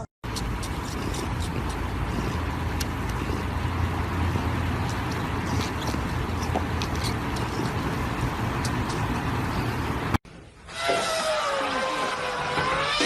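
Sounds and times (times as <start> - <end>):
low rumble with hiss: 0.3 - 10.2.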